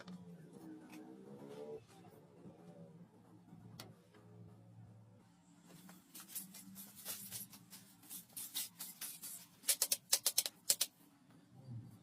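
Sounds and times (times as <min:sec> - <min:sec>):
scratchy rubbing and scraping: 0:06.0 - 0:10.9.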